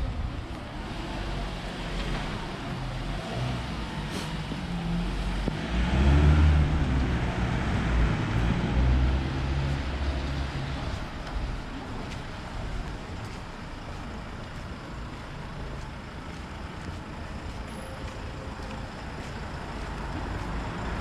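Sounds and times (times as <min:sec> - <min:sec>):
road traffic hum: 0:00.0 - 0:21.0
vehicle engine rumbling: 0:00.0 - 0:21.0.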